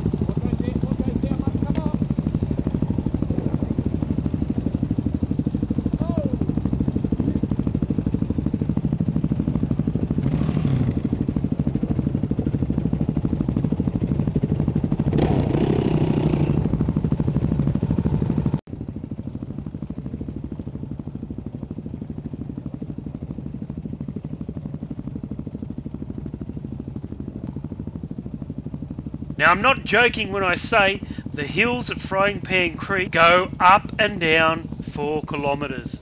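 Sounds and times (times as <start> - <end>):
dirt bike engine revving: 0.0 - 12.4, 13.7 - 18.6, 29.3 - 36.0.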